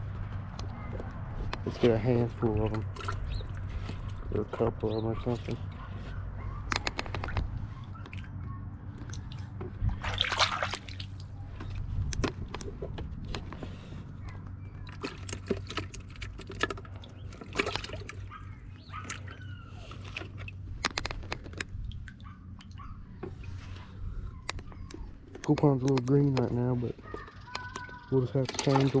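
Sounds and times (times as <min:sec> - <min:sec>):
water splashing and dripping: 0:09.0 - 0:11.8, 0:14.8 - 0:23.6, 0:27.6 - 0:29.0.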